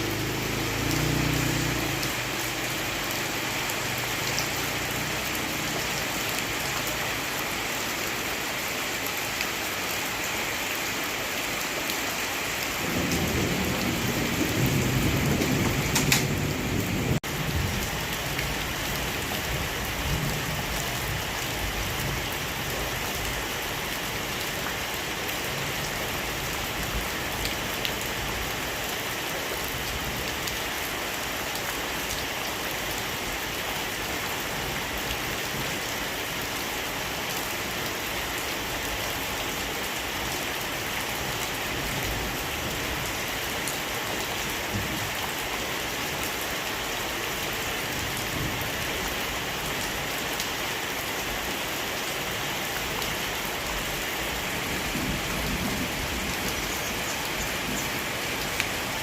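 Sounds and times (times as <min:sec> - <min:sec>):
heavy rain falling: 0:00.0 - 0:59.0
thunder rumble with sharp crack: 0:12.9 - 0:17.9.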